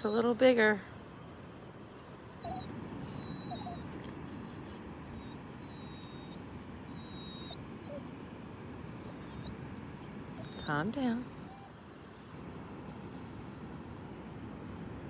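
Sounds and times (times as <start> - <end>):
small dog whimpering: 0.0 - 0.4, 1.9 - 8.2, 9.0 - 9.6, 10.3 - 11.8
beach surf: 2.6 - 15.0.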